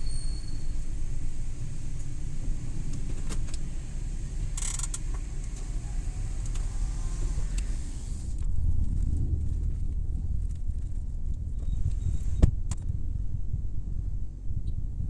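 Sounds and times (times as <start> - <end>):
brief hiss: 0.0 - 8.4
car engine and road noise rumble: 0.0 - 15.0.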